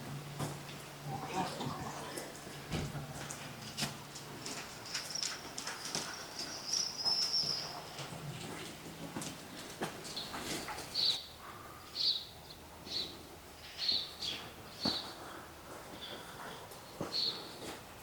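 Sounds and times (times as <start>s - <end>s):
faint footsteps: 0.0s - 11.2s
bird chirping: 5.0s - 8.0s.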